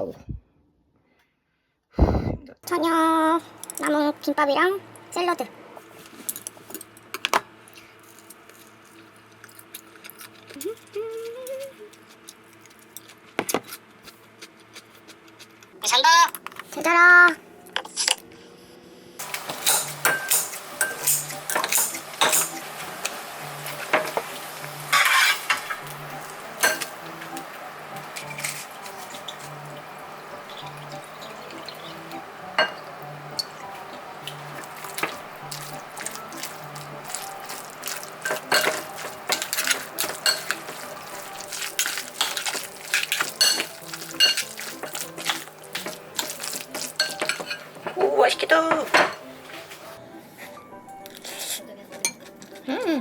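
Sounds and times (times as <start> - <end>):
dishes and utensils clattering: 19.2 - 27.4, 28.0 - 29.9, 30.5 - 49.9
water running: 19.2 - 49.9
light background music: 19.2 - 53.0.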